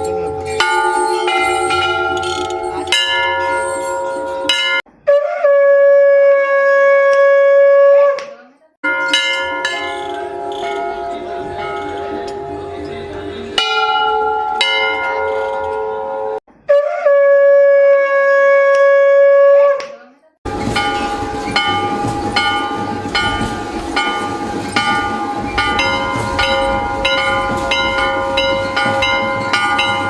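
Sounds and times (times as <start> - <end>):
temple bell ringing: 0.0 - 4.8, 8.8 - 16.4, 20.5 - 30.0
conch shell blown: 5.1 - 8.2, 15.4 - 19.8.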